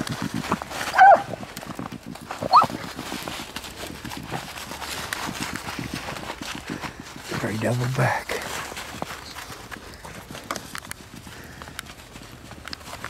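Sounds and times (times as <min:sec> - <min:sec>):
running footsteps: 0:00.0 - 0:13.0
dog yelping: 0:00.9 - 0:01.4, 0:02.4 - 0:02.8.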